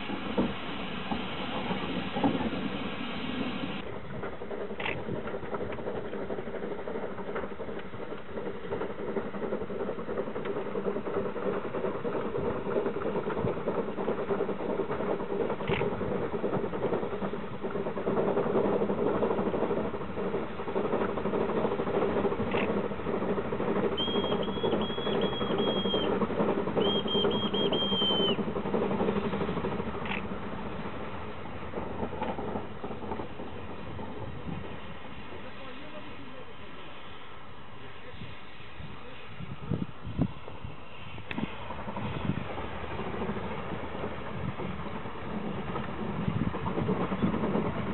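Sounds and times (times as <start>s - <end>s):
snow plow engine and blower hum: 0.0s - 47.9s
high-pitched whistle blasts: 24.0s - 26.2s, 26.8s - 28.4s.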